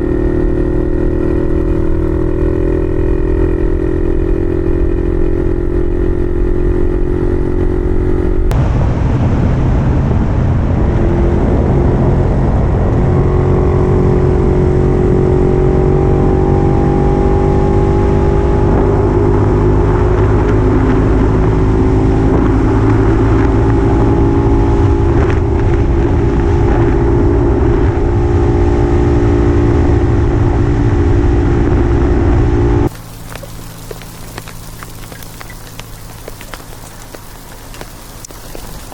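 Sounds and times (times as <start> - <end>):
two-stroke engine running: 0.0 - 8.5, 32.9 - 38.9.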